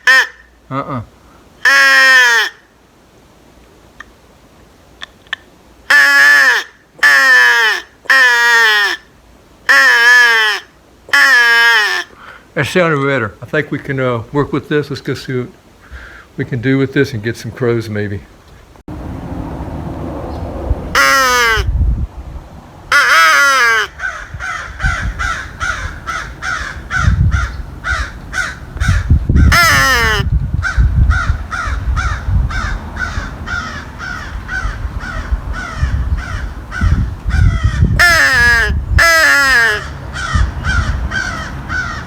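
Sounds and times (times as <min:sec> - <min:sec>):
crow call blown in harsh caws: 0:00.0 - 0:00.5, 0:01.6 - 0:02.7, 0:05.9 - 0:09.1, 0:09.7 - 0:12.3, 0:20.9 - 0:21.7, 0:22.9 - 0:42.0
crows cawing faintly: 0:01.2 - 0:02.8, 0:05.9 - 0:12.4, 0:21.0 - 0:21.7, 0:22.9 - 0:42.0.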